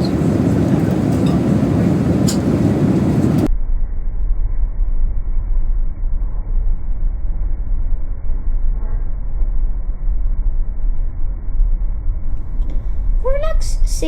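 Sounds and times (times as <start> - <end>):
airliner cabin rumble: 0.0 - 3.5.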